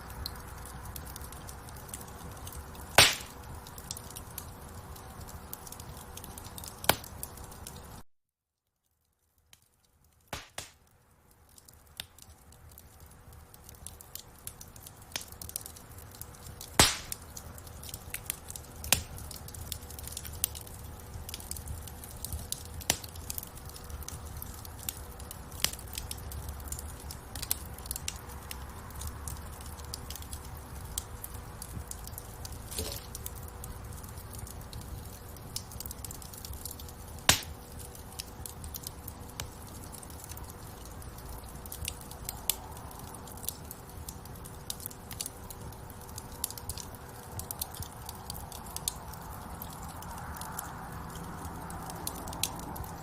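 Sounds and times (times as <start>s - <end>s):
fire popping: 0.0s - 8.0s, 9.0s - 53.0s
low rumble of flame: 0.0s - 8.0s, 9.0s - 53.0s
wood fire crackling: 0.0s - 8.0s, 8.8s - 53.0s.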